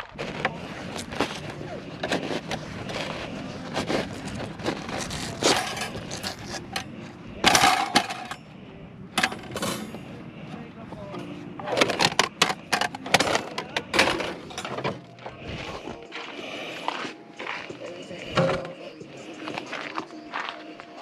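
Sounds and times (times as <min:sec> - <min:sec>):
camping gear clattering and scraping: 0:00.0 - 0:21.0.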